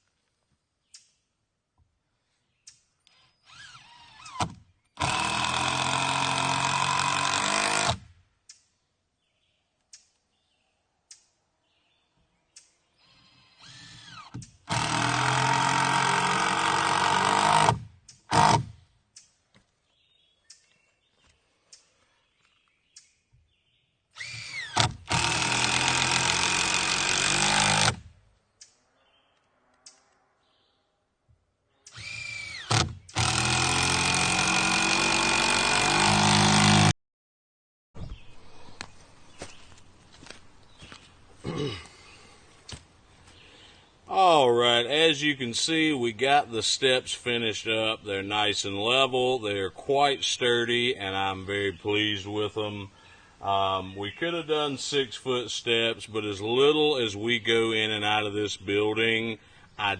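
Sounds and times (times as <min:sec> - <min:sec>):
handheld power tool whining: 0:03.1 - 0:08.1, 0:13.0 - 0:18.7, 0:24.1 - 0:28.1, 0:31.9 - 0:36.9.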